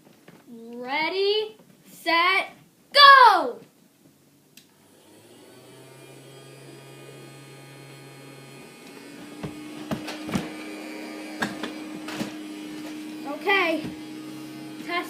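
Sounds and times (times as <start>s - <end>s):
vacuum cleaner motor hum: 4.8s - 15.0s.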